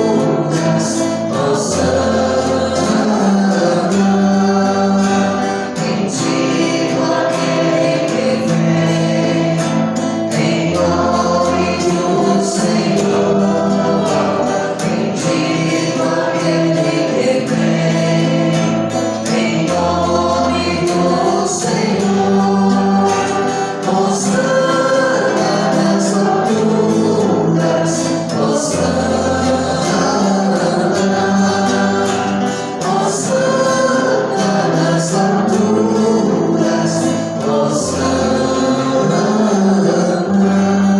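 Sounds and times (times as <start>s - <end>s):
percussion beat: 0.0s - 39.6s
choir singing: 0.0s - 40.9s
instrumental accompaniment: 0.0s - 40.9s.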